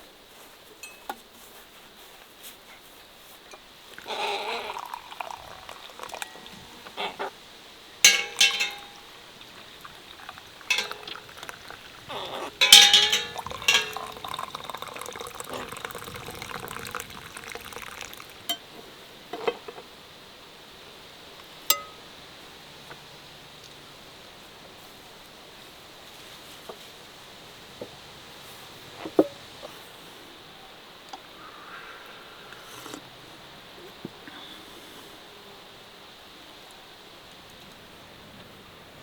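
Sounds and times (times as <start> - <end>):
pots and dishes clinking: 0.8 - 1.2, 4.0 - 6.9, 8.1 - 18.7, 21.7 - 22.0
liquid sounds: 3.9 - 7.3, 8.1 - 18.6.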